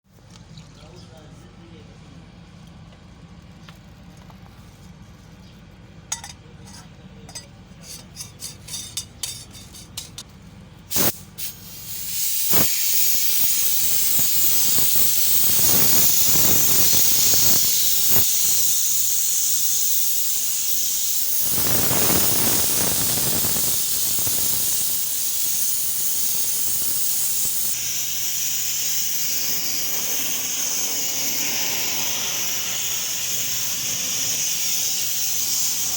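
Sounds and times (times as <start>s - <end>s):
paint spray hiss: 10.9s - 35.9s.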